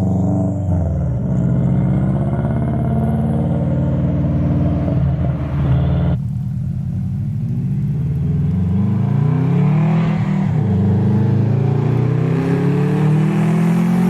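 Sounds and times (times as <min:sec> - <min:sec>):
car exhaust accelerating: 0:00.0 - 0:14.0.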